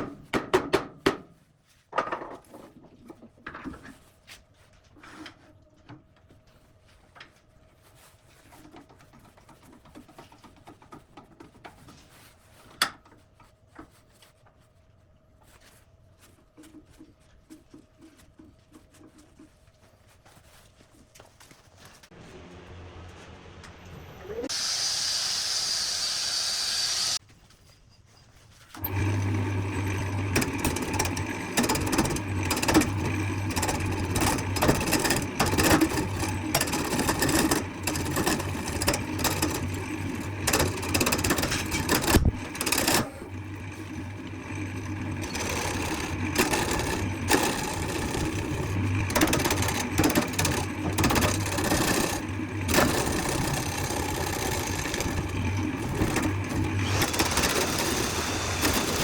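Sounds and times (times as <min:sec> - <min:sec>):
workshop machine motor humming: 0:28.8 - 0:59.0
scraping and clicking: 0:30.1 - 0:43.1.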